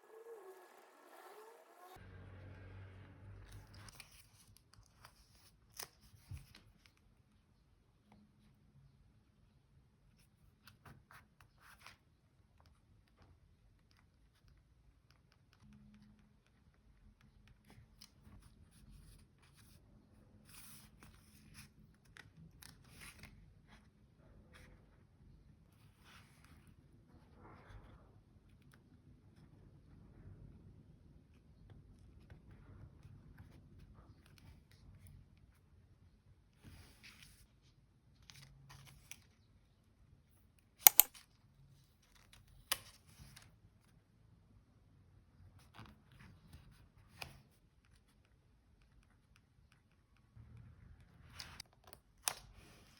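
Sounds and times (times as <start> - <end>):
sharp clicks: 40.9 - 41.2.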